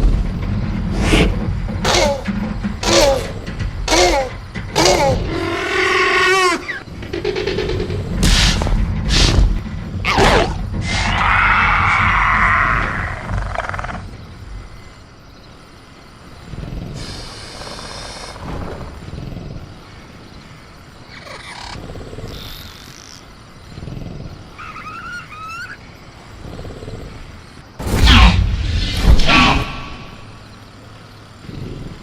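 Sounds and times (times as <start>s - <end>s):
creature growls and rumbles: 0.8s - 14.2s, 23.6s - 25.0s, 31.4s - 32.0s
creature screeching call: 3.9s - 6.8s, 10.1s - 14.0s, 24.6s - 25.8s.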